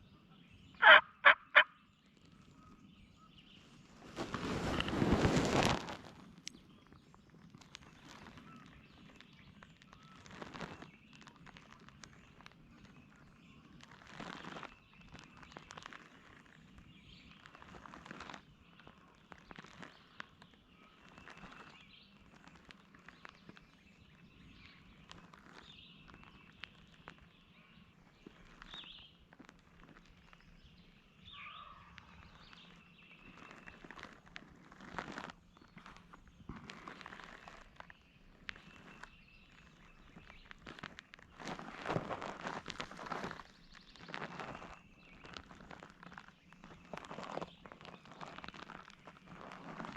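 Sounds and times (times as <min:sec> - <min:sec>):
small birds chirping: 0:00.0 - 0:49.9
rustles in dry leaves: 0:00.8 - 0:49.9.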